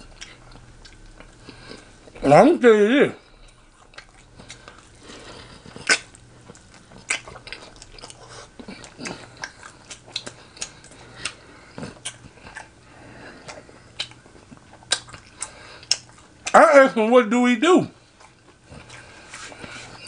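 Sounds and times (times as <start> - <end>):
wet chewing mouth smacks: 3.4 - 12.8, 13.4 - 16.6.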